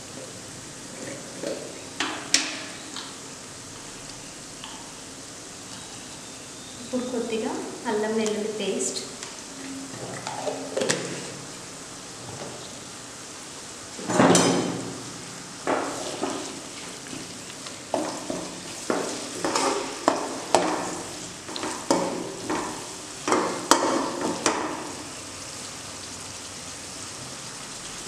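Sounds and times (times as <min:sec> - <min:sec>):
low frying hiss: 0:00.0 - 0:28.0
paste sizzling in hot oil: 0:14.9 - 0:25.5.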